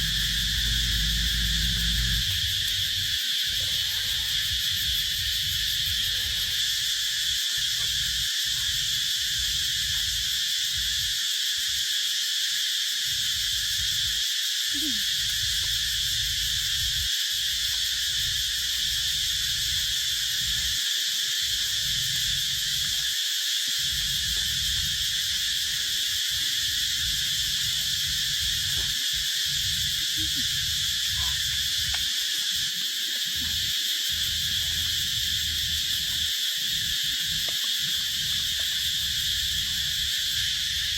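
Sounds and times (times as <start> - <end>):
low rumble: 0.0 - 3.7
insects chorus: 0.0 - 40.9.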